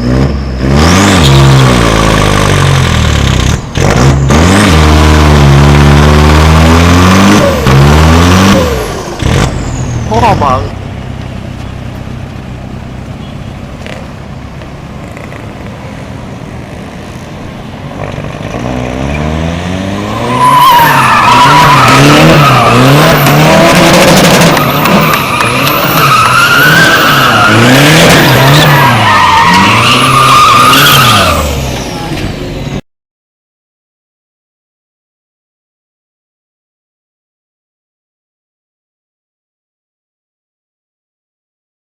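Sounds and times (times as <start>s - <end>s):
diesel engine revving: 0.0s - 32.8s.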